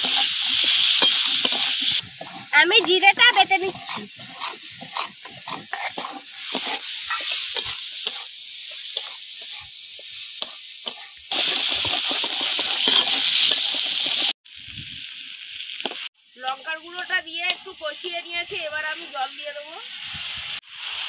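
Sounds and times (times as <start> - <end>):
metal spatula scraping pan: 0.0 - 9.7, 10.4 - 14.3
vegetables sizzling in oil: 0.0 - 21.0.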